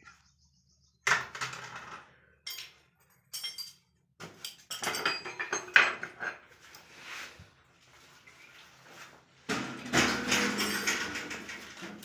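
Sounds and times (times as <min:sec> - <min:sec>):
hard objects clattering and clinking: 0:01.1 - 0:06.5, 0:09.5 - 0:12.0.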